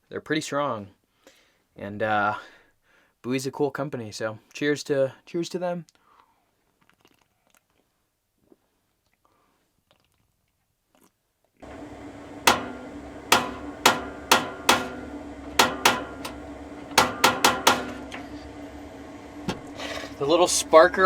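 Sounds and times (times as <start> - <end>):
stove spark igniter clicking: 11.6 - 19.8
steady hum: 11.6 - 21.0.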